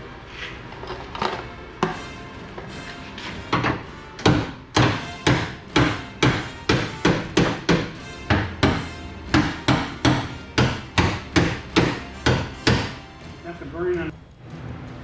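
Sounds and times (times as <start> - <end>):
hammer striking with ring: 1.8 - 13.4.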